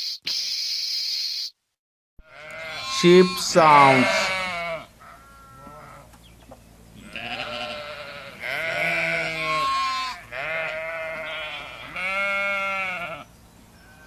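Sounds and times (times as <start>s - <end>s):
sheep bleating: 2.2s - 6.1s, 7.0s - 13.3s.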